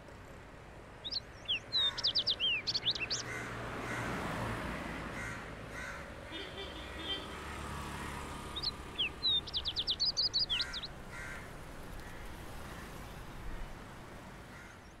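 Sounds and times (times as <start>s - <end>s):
high sweeping bird chirps: 1.0s - 3.3s, 8.5s - 10.9s
harsh bird calls: 1.0s - 4.1s, 5.2s - 13.1s.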